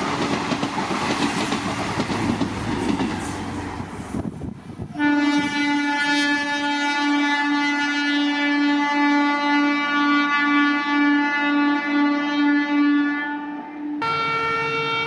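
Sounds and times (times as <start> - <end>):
locomotive air horn blast: 4.8 - 15.0.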